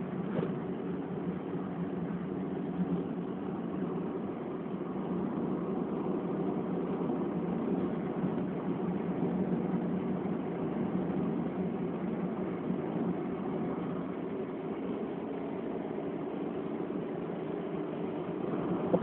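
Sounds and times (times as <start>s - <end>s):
tyre and road noise: 0.0s - 3.8s, 18.0s - 19.0s
car engine droning: 0.0s - 19.0s.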